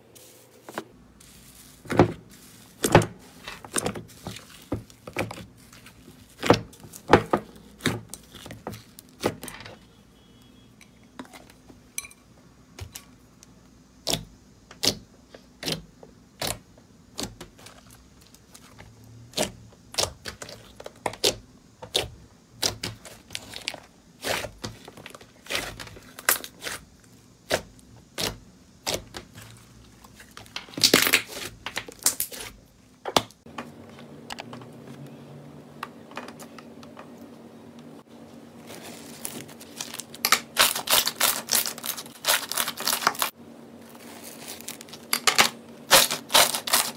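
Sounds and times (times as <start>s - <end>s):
crunchy slime crackling when squeezed: 38.9s - 43.3s, 44.0s - 46.9s.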